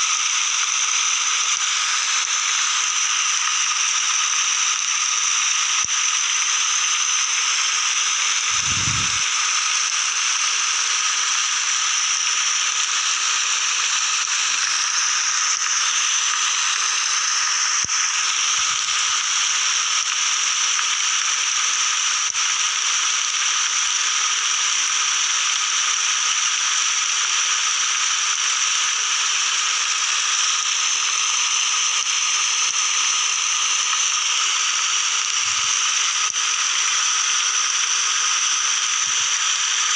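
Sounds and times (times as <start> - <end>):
steady rainfall: 7.2 - 12.6, 13.7 - 24.2.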